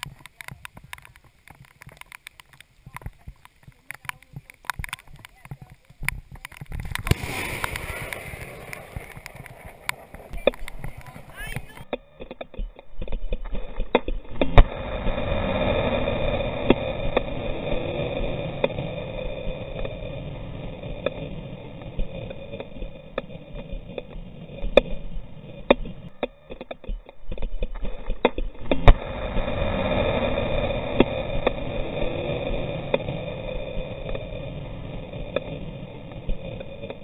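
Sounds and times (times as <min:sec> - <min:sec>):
heavy rain: 0:00.0 - 0:11.8, 0:28.8 - 0:37.0
sharp taps: 0:00.0 - 0:13.2.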